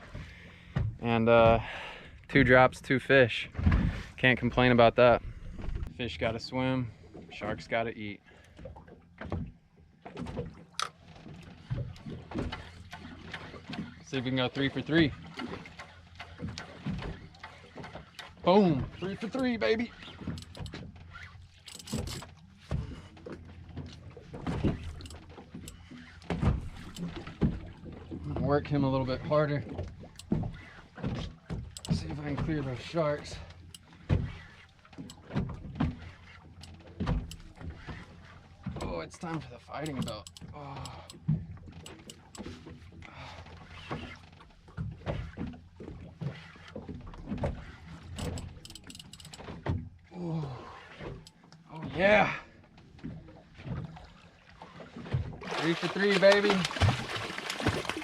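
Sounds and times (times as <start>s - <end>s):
boat engine hum: 0.0s - 58.0s
fishing gear knocking and clattering: 9.2s - 46.0s, 46.7s - 50.0s, 55.0s - 58.0s.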